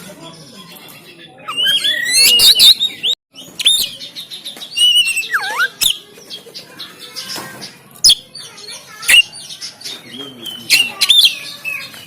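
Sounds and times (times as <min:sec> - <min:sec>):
bird whistled notes and trills: 0:00.6 - 0:06.4, 0:08.0 - 0:12.0
bird harsh snapping calls: 0:03.5 - 0:08.4, 0:09.0 - 0:12.0.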